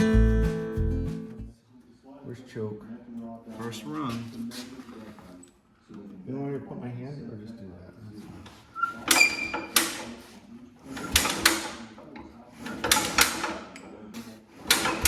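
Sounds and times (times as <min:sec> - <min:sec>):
engine cranking without catching: 0:10.9 - 0:11.8, 0:12.6 - 0:13.8, 0:14.6 - 0:15.0.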